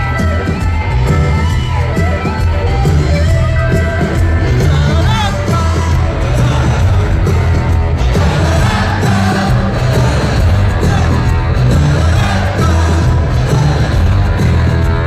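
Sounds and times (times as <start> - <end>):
live rock band playing: 0.0 - 15.0
person singing: 3.8 - 15.0.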